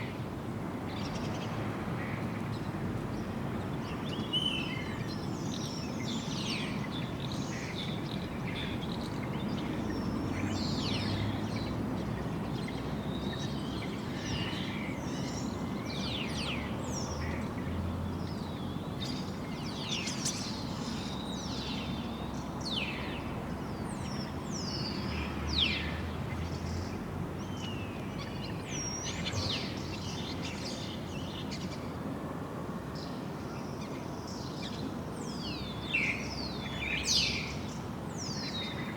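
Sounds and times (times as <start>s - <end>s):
small birds chirping: 2.5s - 31.9s.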